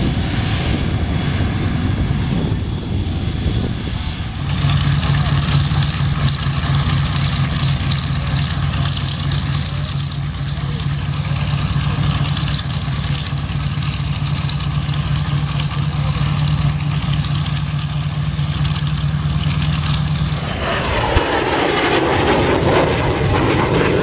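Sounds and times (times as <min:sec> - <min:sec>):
engine drone: 0:00.0 - 0:24.0
loud rushing noise: 0:20.3 - 0:24.0.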